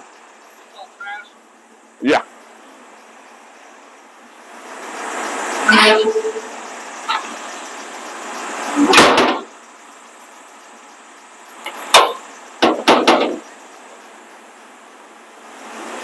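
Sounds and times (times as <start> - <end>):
hard knocks and bangs: 8.9 - 9.5, 11.9 - 13.5.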